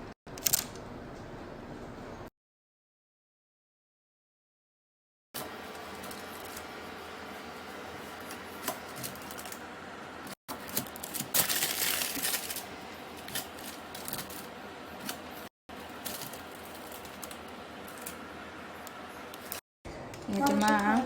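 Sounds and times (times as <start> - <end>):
crinkling and scraping: 8.0 - 9.6, 10.5 - 18.3.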